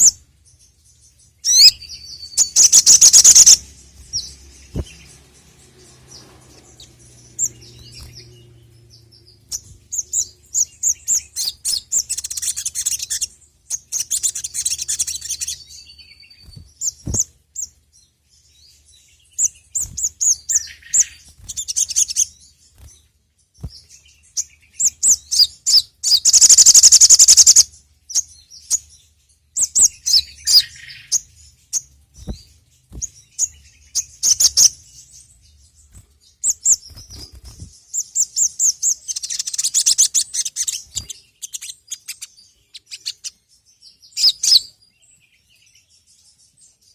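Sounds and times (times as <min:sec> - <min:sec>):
songbird chirping and trilling: 0:00.0 - 0:46.9.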